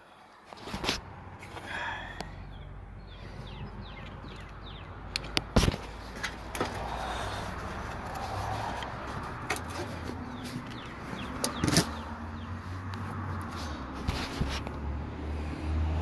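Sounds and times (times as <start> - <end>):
car parts clicking and knocking: 3.4 - 14.8.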